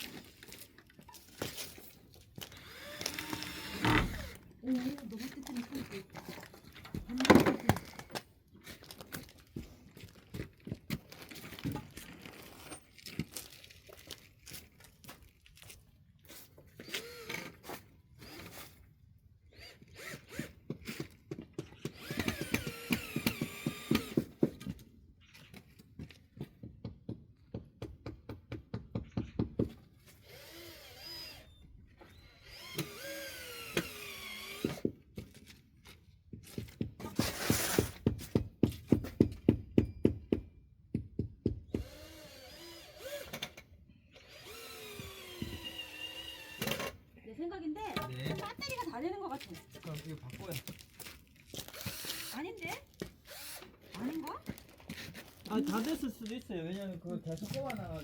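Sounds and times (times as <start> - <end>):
power driver driving screws: 2.5 - 4.5, 16.8 - 18.8, 19.5 - 24.4, 30.2 - 34.9, 41.8 - 47.0, 51.5 - 54.2.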